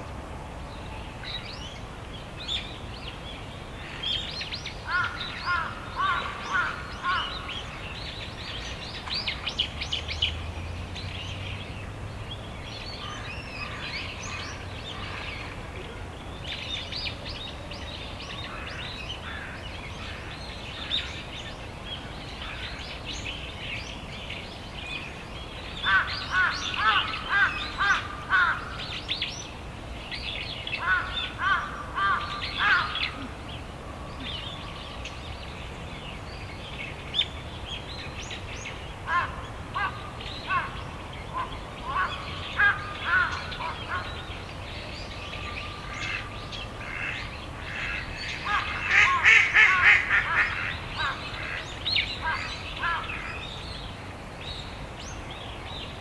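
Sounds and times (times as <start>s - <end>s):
birds giving loud harsh calls: 25.8s - 29.0s, 30.8s - 33.4s, 39.0s - 44.3s, 45.6s - 53.4s.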